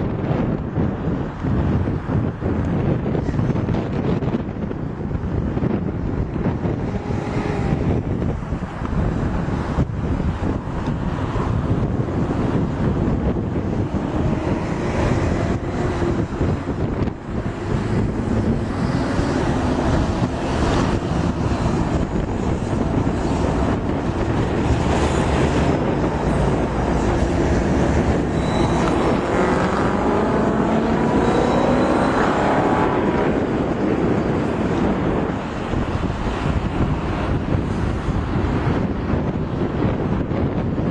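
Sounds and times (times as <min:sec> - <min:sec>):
freight train rumbling past: 0:05.2 - 0:40.7
pitched whine rising: 0:25.0 - 0:33.3.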